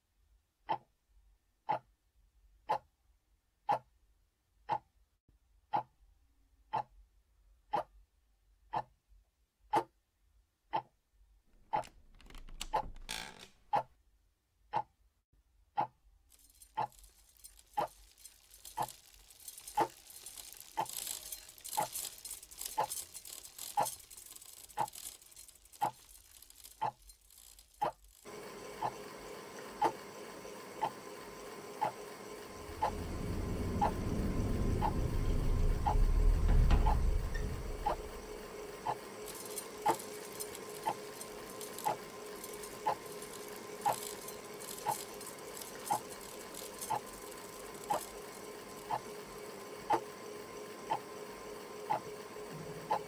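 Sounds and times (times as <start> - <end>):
clock ticking: 10.7 - 11.0
low hum and rumble: 32.5 - 38.7.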